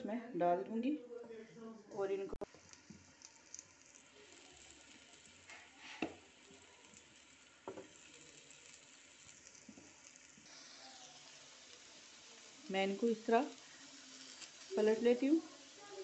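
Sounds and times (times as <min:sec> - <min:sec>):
potatoes sizzling in a pan: 0:02.1 - 0:16.0.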